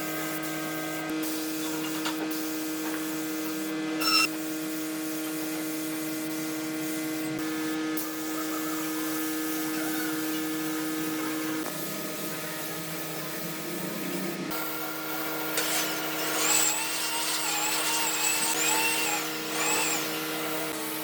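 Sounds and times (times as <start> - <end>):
steady workshop hum: 0.0 - 21.0
power tool whining on wood: 14.5 - 21.0.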